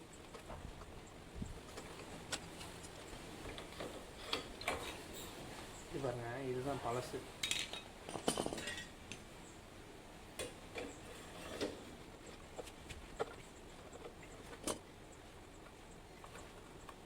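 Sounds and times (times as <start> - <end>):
metal parts and tools clinking: 7.4 - 8.9.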